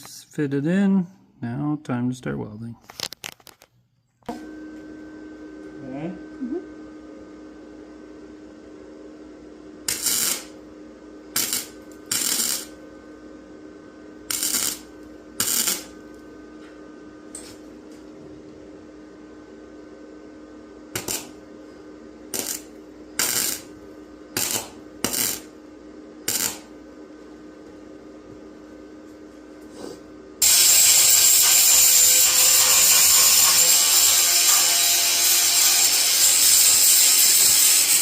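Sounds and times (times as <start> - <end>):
steady hum: 3.9 - 38.0
welding crackling hiss: 9.9 - 10.6, 11.3 - 12.8, 14.3 - 16.0, 20.9 - 21.4, 22.3 - 25.6, 26.2 - 26.7, 30.4 - 38.0.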